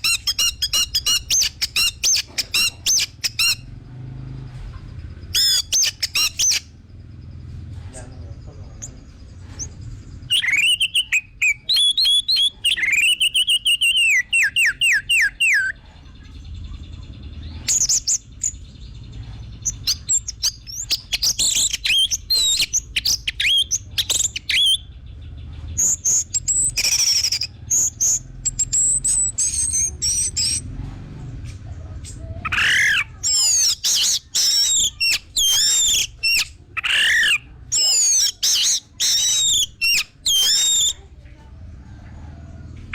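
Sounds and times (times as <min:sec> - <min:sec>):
thrush singing whistled phrases: 0:05.3 - 0:06.7, 0:10.3 - 0:15.8, 0:19.8 - 0:24.9, 0:25.8 - 0:30.6, 0:32.4 - 0:41.0.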